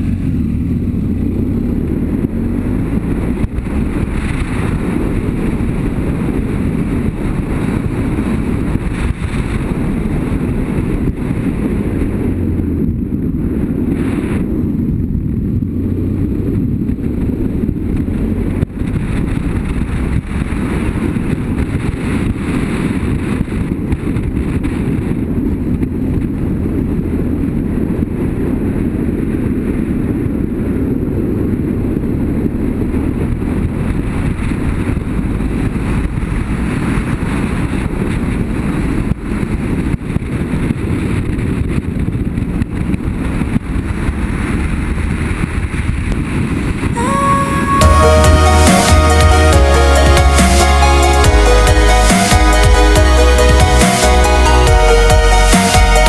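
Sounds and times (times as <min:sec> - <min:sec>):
motorcycle engine running: 0:00.0 - 0:13.8
wind noise on microphone: 0:00.0 - 0:56.0.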